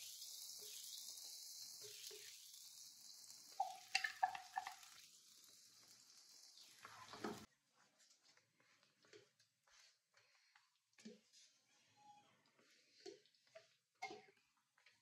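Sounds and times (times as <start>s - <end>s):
paste sizzling in oil: 0.0s - 7.5s.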